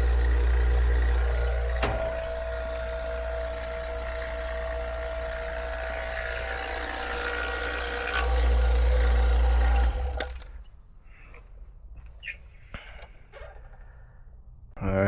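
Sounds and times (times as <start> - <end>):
vacuum pump humming: 0.0 - 10.6.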